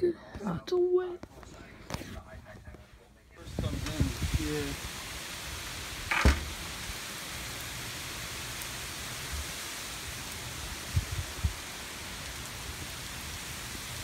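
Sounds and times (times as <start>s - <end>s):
heavy rain hissing: 3.4s - 14.0s.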